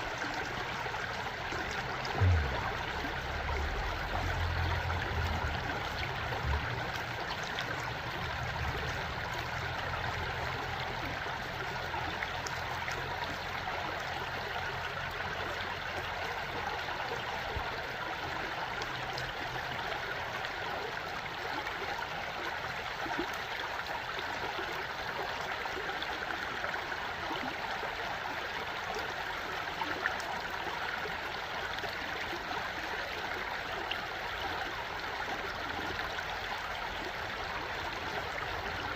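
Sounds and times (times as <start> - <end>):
stream flowing and trickling: 0.0 - 38.9
low hum: 1.5 - 10.6.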